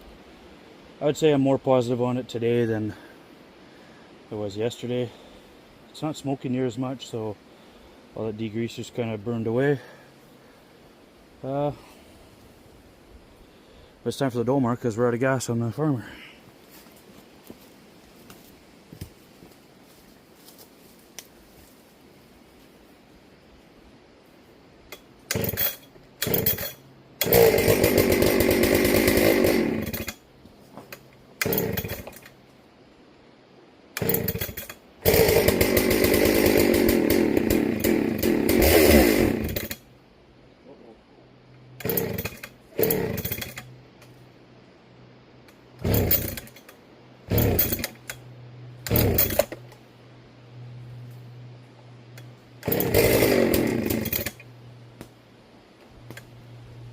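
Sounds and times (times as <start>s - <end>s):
chainsaw revving and idling: 24.9s - 30.2s, 31.4s - 32.4s, 34.0s - 39.9s, 41.8s - 43.7s, 45.8s - 48.2s, 48.8s - 49.7s, 52.2s - 54.6s.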